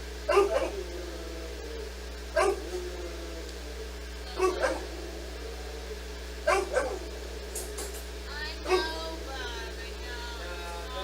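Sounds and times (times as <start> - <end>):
dog barking: 0.3 - 0.9, 2.4 - 2.8, 4.4 - 7.1, 8.6 - 9.0.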